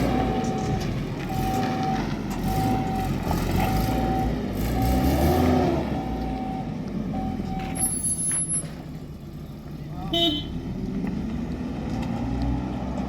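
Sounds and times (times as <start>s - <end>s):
reversing alarm beeping: 0.0s - 8.6s
vehicle engine rumble: 0.0s - 13.0s.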